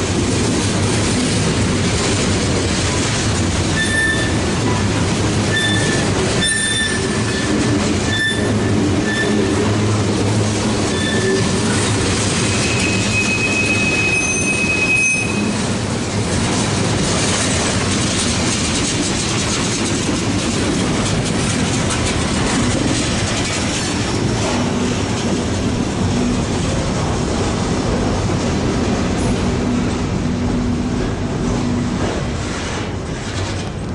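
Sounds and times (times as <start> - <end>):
train wheels rumbling on rails: 0.0 - 33.9
high wheel squeal: 3.7 - 4.4, 5.5 - 9.8, 10.8 - 15.6.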